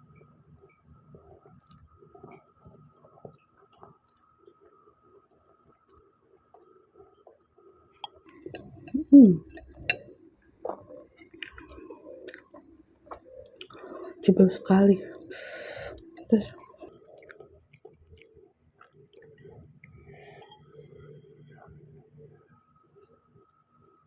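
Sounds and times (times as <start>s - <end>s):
person chewing noodles: 1.6s - 2.4s, 3.8s - 4.7s, 8.1s - 14.2s, 15.1s - 21.8s.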